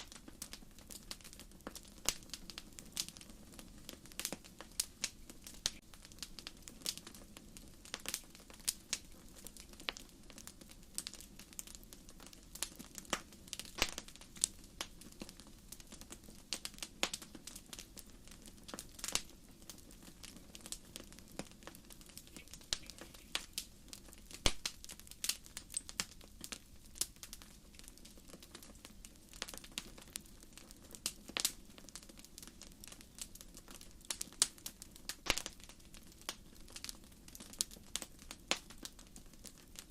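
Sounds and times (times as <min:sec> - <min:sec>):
hiss of flames: 0:00.0 - 0:31.6
firewood crackling and popping: 0:00.0 - 0:39.9.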